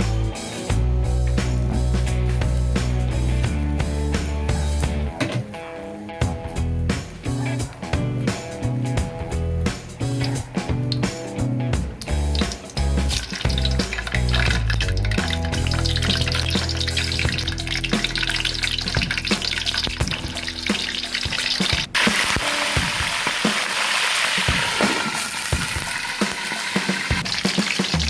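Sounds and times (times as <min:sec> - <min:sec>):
background music: 0:00.0 - 0:28.0
food sizzling in a pan: 0:12.0 - 0:28.0.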